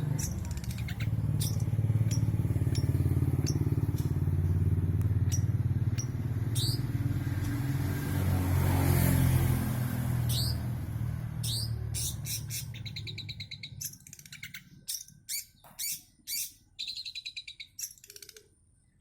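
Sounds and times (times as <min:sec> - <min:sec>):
high bird chirps: 0:00.0 - 0:07.6, 0:10.2 - 0:18.6
motorcycle engine pulsing hum: 0:00.0 - 0:13.9.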